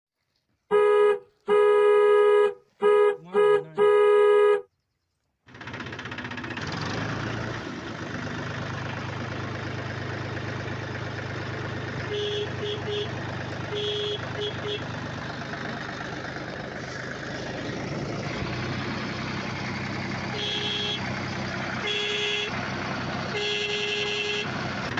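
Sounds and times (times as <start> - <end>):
loud horn blasts: 0.7 - 4.6, 12.0 - 14.9, 20.3 - 21.1, 21.8 - 22.6, 23.3 - 24.6
short horn beeps: 0.7 - 4.7, 12.1 - 14.8, 20.3 - 21.0
engine running: 5.5 - 24.9.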